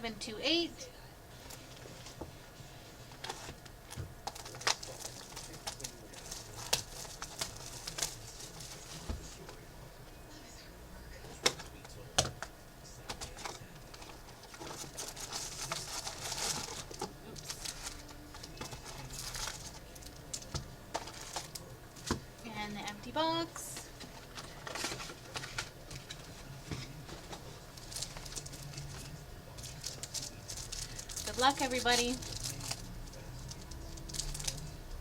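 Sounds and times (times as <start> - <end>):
foil packs crinkling: 3.1 - 9.6, 12.9 - 22.2, 23.1 - 34.8.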